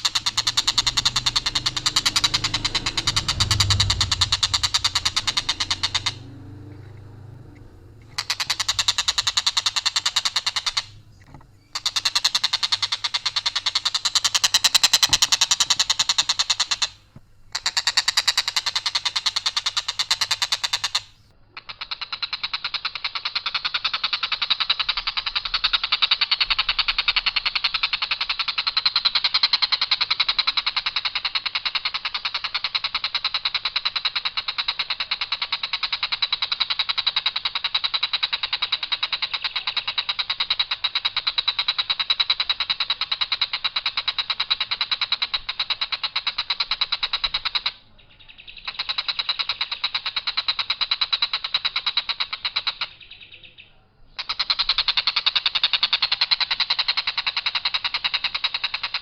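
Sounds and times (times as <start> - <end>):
kingfisher rattling trill: 0.0 - 17.0.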